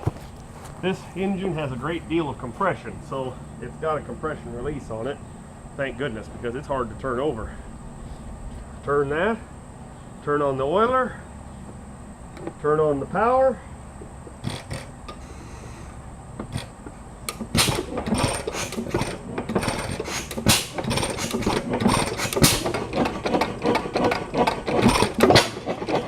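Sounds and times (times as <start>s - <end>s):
engine clicks: 10.2s - 26.0s
stationary engine clattering: 10.8s - 26.0s.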